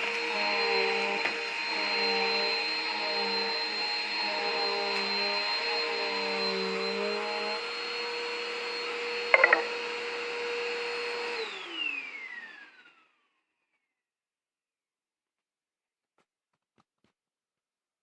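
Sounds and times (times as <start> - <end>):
high-pitched vacuum whine: 0.0 - 13.3
vacuum cleaner running: 0.0 - 13.4.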